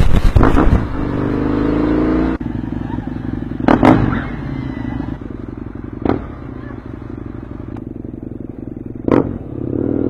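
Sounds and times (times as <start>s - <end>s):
exhaust bangs and pops: 0.0s - 1.0s
motorcycle engine revving and idling: 0.2s - 10.0s.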